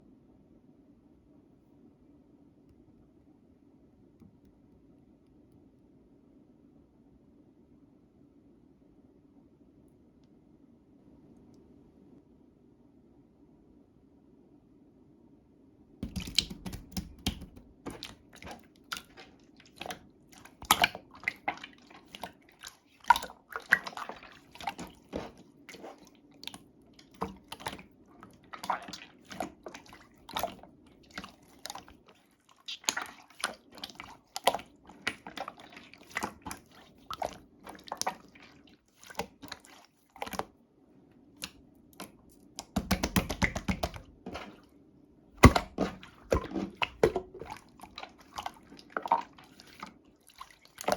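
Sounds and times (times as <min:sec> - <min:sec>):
slime squeezed with wet clicks: 0:16.0 - 0:19.2.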